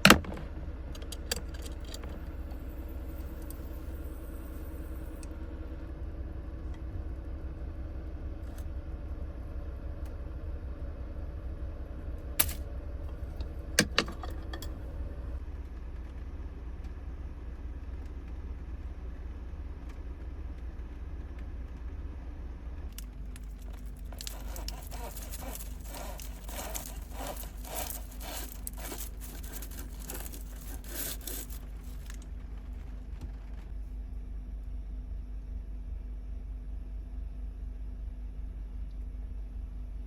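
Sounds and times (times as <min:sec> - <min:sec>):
vehicle rumble: 0:00.0 - 0:34.4
rapid clicking and rattling: 0:23.3 - 0:33.7.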